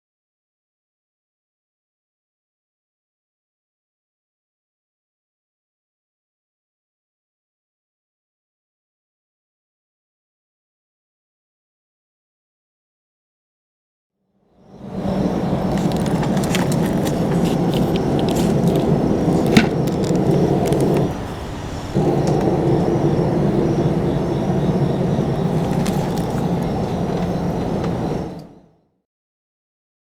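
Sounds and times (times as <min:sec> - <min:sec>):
steady low drone: 0:14.6 - 0:28.8.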